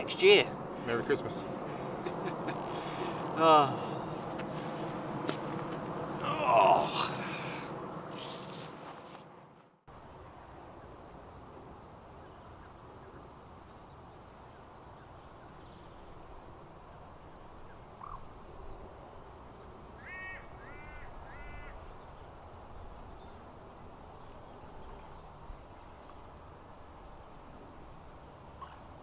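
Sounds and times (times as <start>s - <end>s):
outdoor background rush: 0.0s - 29.0s
bird chirp: 11.7s - 19.0s
bird calling: 17.6s - 18.4s, 20.0s - 22.2s, 28.5s - 29.0s.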